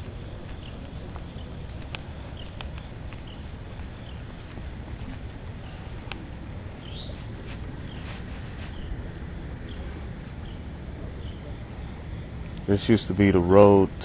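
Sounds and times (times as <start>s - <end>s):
high-pitched insect drone: 0.0s - 14.0s
bird chirps: 6.8s - 8.9s.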